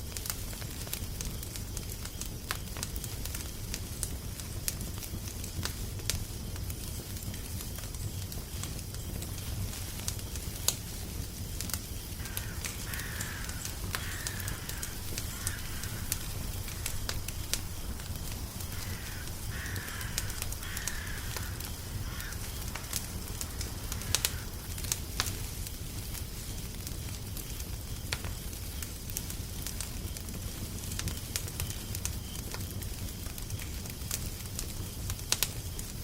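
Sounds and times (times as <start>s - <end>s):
wood fire crackling: 0.0s - 36.0s
repeated bird calls: 12.0s - 24.7s.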